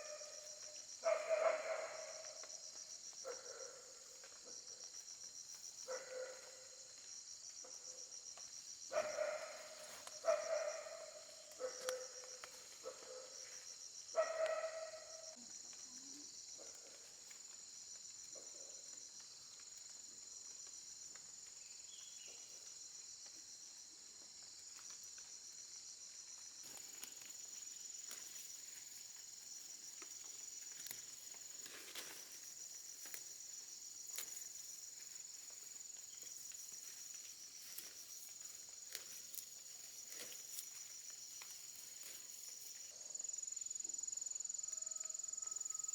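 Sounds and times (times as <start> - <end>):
crickets chirping: 0.0 - 45.9
rustles or steps: 26.6 - 33.4, 34.0 - 42.9.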